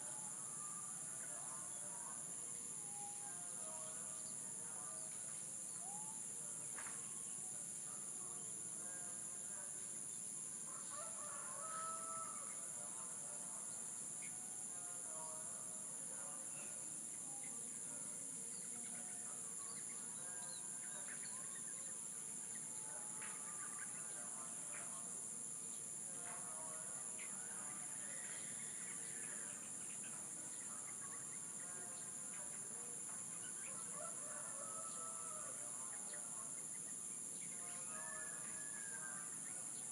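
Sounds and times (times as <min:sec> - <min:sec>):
roosters crowing: 0:10.7 - 0:12.6, 0:33.8 - 0:35.7.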